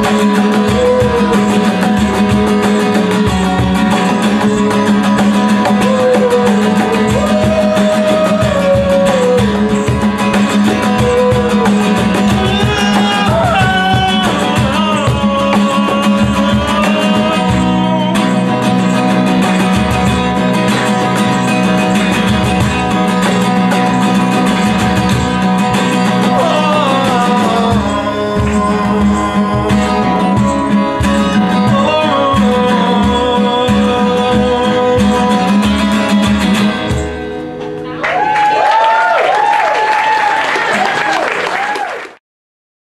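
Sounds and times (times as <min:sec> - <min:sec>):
guitar band music: 0:00.0 - 0:40.9.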